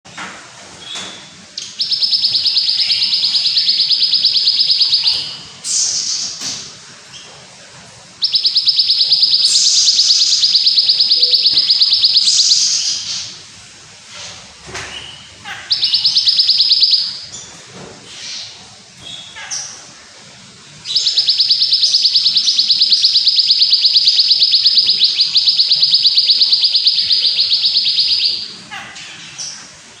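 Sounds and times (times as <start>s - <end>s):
songbird trill: 0.8s - 6.6s, 8.2s - 13.4s, 14.8s - 17.5s, 20.8s - 29.7s
songbird high rapid trill: 8.2s - 13.2s.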